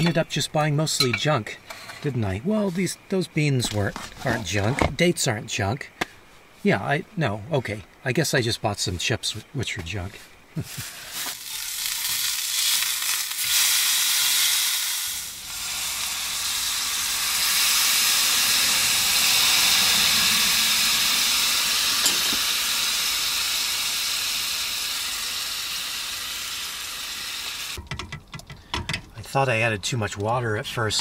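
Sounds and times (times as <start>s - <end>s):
beef and peas sizzling in skillet: 10.6s - 27.8s.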